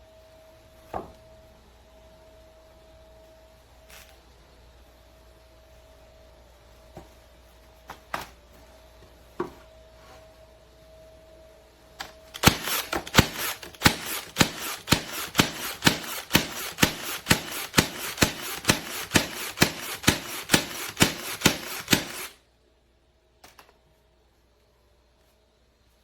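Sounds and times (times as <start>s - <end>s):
nail gun firing: 12.0s - 22.4s.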